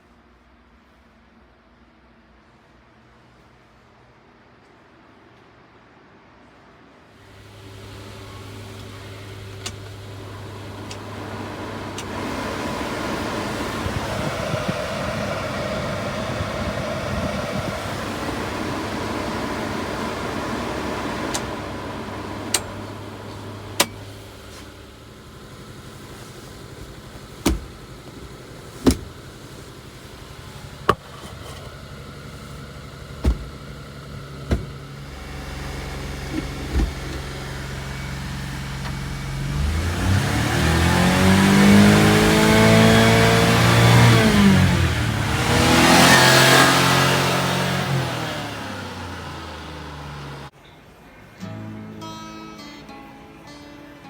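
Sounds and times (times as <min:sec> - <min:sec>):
small truck engine running: 0:07.2 - 0:50.6
sharp knocks or clunks: 0:27.4 - 0:27.8, 0:33.2 - 0:33.6, 0:34.4 - 0:34.8.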